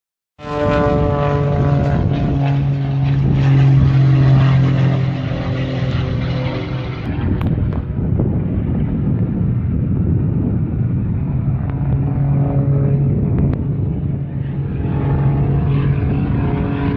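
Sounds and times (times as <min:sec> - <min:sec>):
aircraft engine drone: 0:00.4 - 0:16.9.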